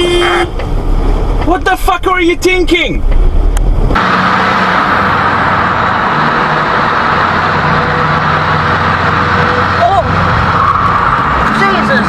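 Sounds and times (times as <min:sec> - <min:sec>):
car road noise: 0:00.0 - 0:12.0.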